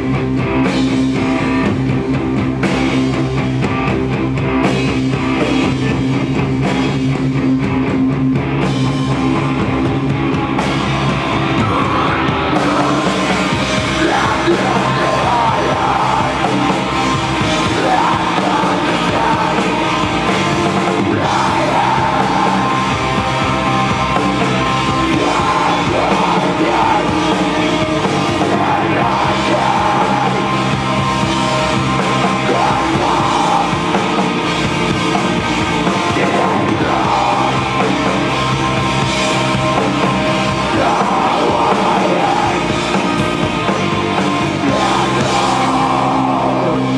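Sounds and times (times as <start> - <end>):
live rock band playing: 0.0 - 46.9.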